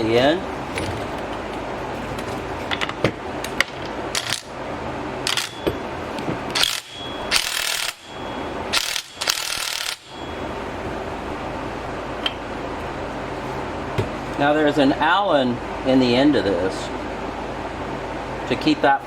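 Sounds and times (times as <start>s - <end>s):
ratchet wrench clicking: 6.6s - 8.0s, 8.7s - 10.1s.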